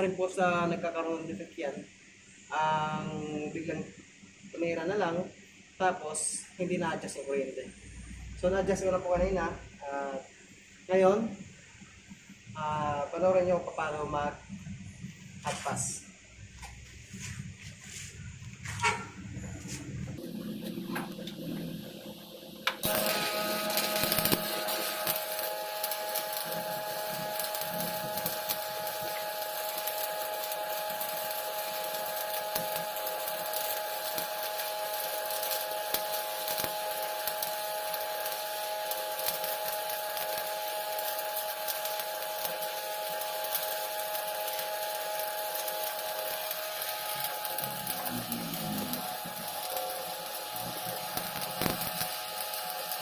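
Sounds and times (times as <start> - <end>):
steady electrical hum: 0.0 - 53.0
welding arc crackling and sizzling: 6.1 - 53.0.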